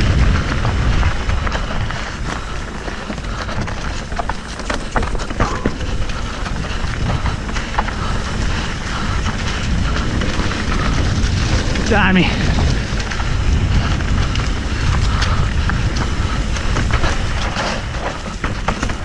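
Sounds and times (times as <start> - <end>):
bike tyre rumble: 0.7 - 11.4, 14.7 - 19.0
bike clicks and rattles: 2.6 - 7.0, 17.3 - 19.0.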